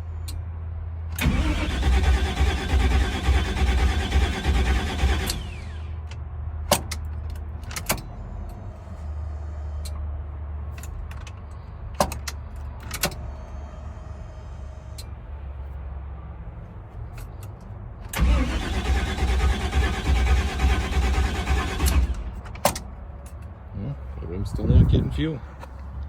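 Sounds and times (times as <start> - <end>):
truck engine cranking: 1.1 - 8.6, 17.2 - 23.5.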